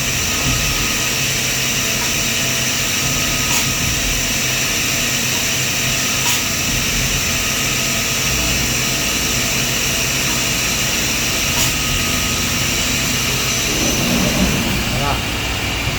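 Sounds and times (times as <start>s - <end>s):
milling spindle whine: 13.2s - 15.4s
machine hum: 13.2s - 15.6s.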